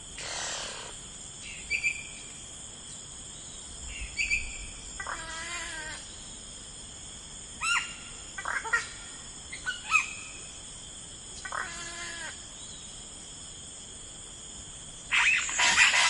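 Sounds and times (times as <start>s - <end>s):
high insect drone: 0.0s - 16.0s
bird chirp: 3.4s - 5.2s, 15.1s - 16.0s
wavering bird call: 15.1s - 16.0s.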